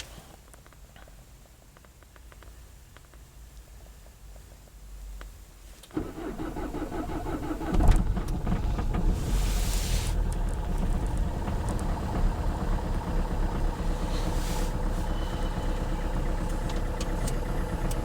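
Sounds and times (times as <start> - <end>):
diesel engine starting and idling: 5.9 - 18.0
short hiss: 9.2 - 10.3, 14.0 - 15.2.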